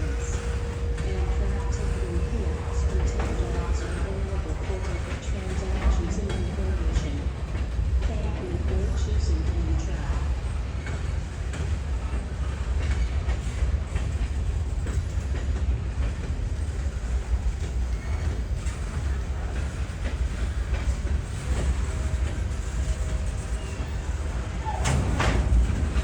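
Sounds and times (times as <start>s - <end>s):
train rumbling past: 0.0s - 26.0s
wheels clicking over rails: 0.0s - 26.0s.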